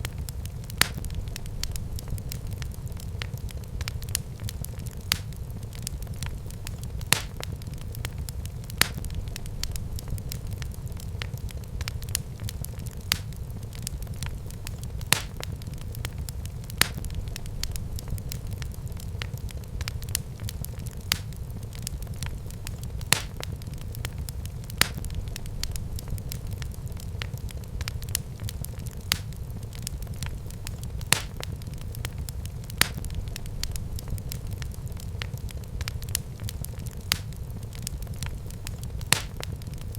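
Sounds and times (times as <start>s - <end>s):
fire crackling and popping: 0.0s - 39.9s
fire flames rumbling: 0.0s - 39.9s.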